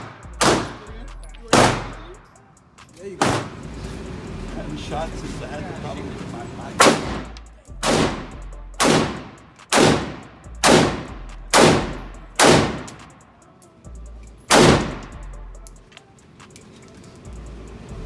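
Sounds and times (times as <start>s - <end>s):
gunshots: 0.0s - 0.9s, 1.5s - 2.2s, 3.2s - 3.6s, 6.8s - 13.2s, 14.5s - 15.2s.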